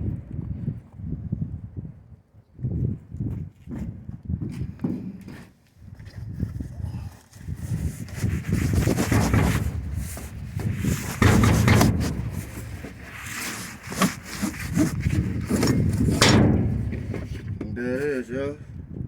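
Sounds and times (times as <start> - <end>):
rubbing and scraping packaging: 7.7 - 17.6
sharp knock: 9.0 - 17.6.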